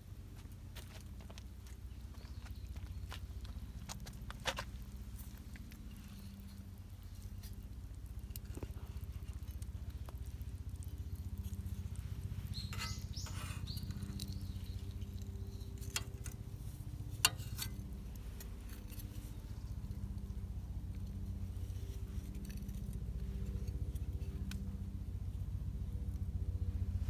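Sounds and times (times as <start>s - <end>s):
campfire rumble: 0.0s - 27.0s
fire crackles and pops: 3.9s - 21.4s.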